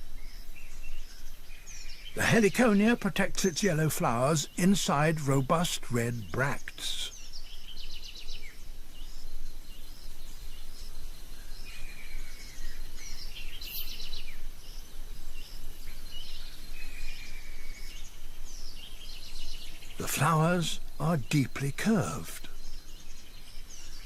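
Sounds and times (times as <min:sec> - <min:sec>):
birds chirping and trilling: 0:00.0 - 0:24.0
buzzy bird call: 0:20.0 - 0:22.6.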